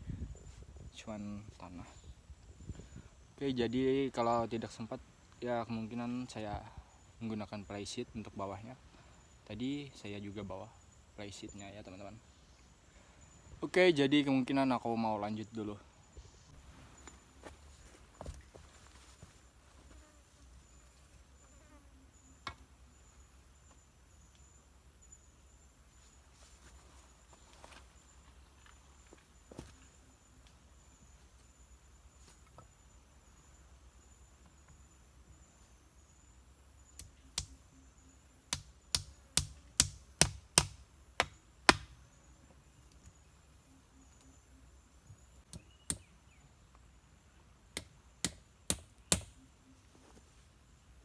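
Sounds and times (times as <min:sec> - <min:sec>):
faint insect trilling: 0:19.8 - 0:26.3, 0:27.0 - 0:39.6
blade chopping wood: 0:38.5 - 0:42.0.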